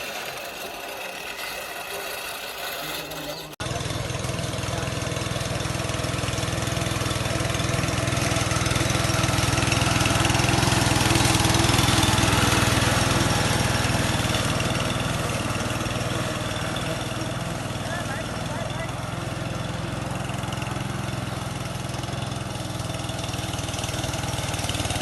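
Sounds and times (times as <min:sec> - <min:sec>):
lawn mower engine running: 0:00.0 - 0:25.0.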